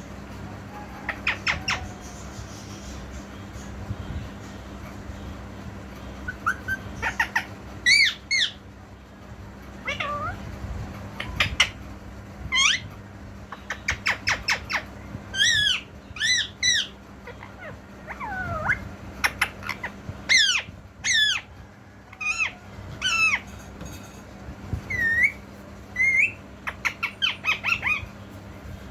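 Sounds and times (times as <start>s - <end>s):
parrot squawking and whistling: 6.2s - 8.6s, 9.8s - 10.4s, 12.5s - 13.0s, 13.6s - 21.5s, 22.2s - 23.5s, 24.8s - 28.2s.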